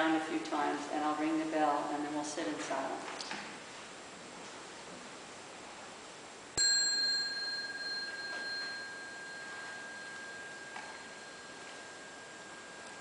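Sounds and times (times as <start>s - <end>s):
bell ringing: 6.6s - 13.0s.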